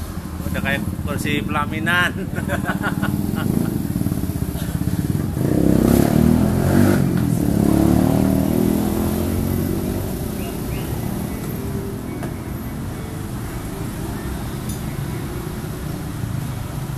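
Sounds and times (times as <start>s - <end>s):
two-stroke motorcycle engine revving: 2.4s - 12.1s.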